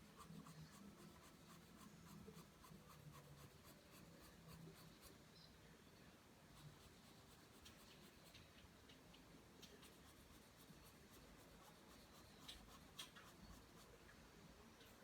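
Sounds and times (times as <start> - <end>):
pencil scratching on paper: 0.0 - 5.2, 6.6 - 8.3, 9.8 - 13.9.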